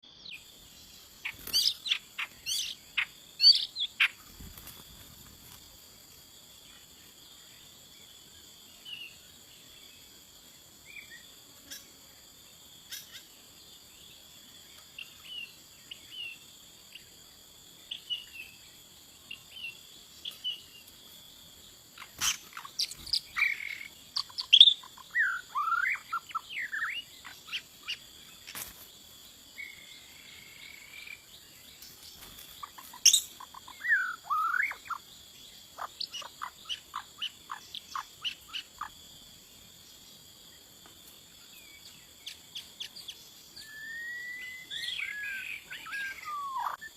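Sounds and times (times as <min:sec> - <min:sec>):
bird chirps: 0:00.0 - 0:04.8, 0:22.0 - 0:28.7, 0:29.6 - 0:39.0, 0:41.5 - 0:46.9
high-pitched insect drone: 0:41.4 - 0:46.9
gliding whistled bird notes: 0:43.6 - 0:46.9.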